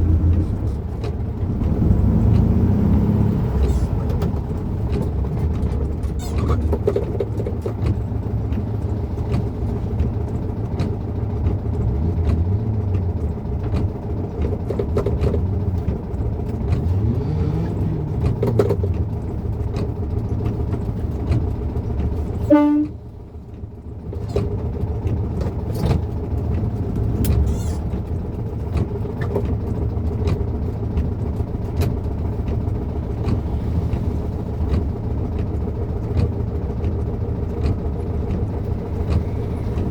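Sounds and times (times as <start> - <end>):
car engine running: 0.0 - 39.9
car horn toot: 22.4 - 23.0.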